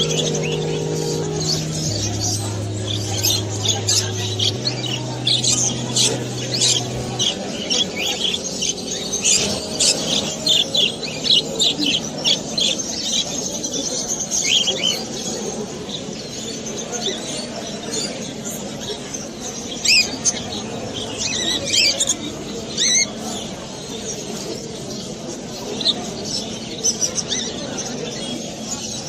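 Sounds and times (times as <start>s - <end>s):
low steady hum: 0.0s - 14.1s.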